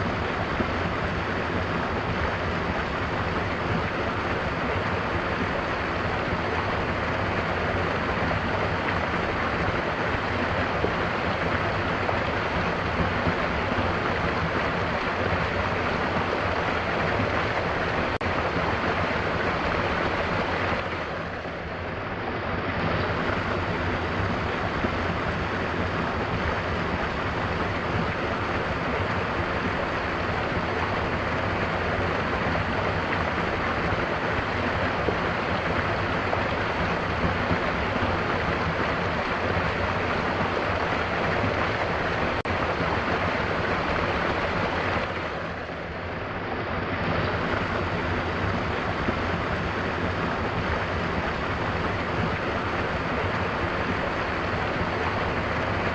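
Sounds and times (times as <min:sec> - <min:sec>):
waterfall roaring: 0:00.0 - 0:55.9.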